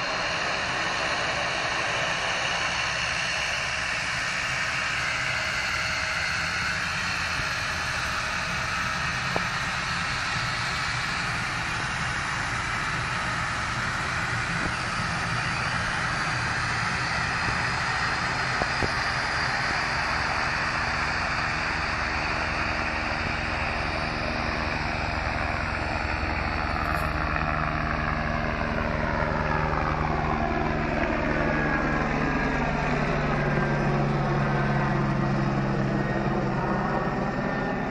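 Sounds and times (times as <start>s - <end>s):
helicopter engine and rotor: 0.0s - 37.9s
low hum: 0.0s - 37.9s
sweeping falling tone: 11.3s - 37.9s.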